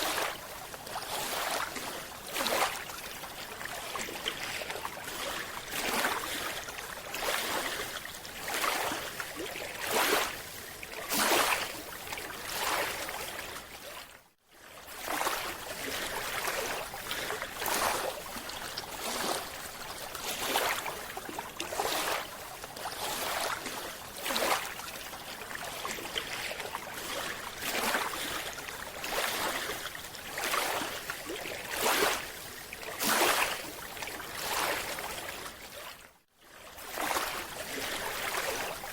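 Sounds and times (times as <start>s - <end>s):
water sloshing: 15.0s - 35.8s, 36.8s - 38.9s.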